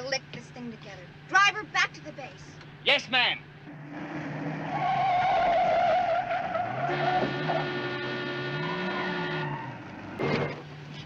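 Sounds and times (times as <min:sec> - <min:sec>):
car tires squealing: 0:03.7 - 0:10.5.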